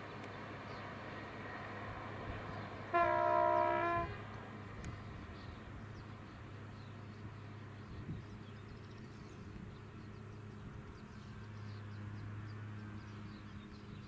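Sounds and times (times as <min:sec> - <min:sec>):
train horn blast: 0:02.9 - 0:04.3.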